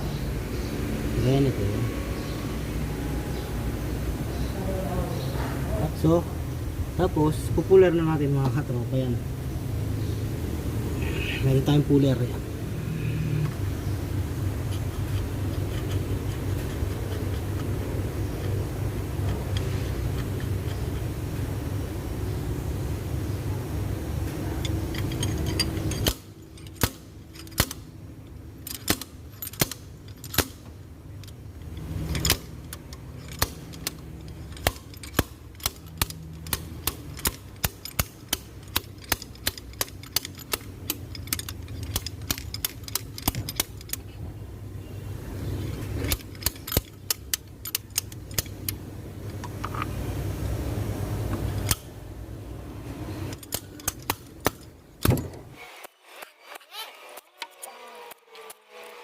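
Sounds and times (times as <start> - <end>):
low hum: 0.0 - 7.8
ratchet wrench clicking: 14.7 - 17.8, 24.6 - 27.8, 31.2 - 44.1, 46.0 - 48.8
metal clinks: 24.6 - 27.8, 31.2 - 44.1.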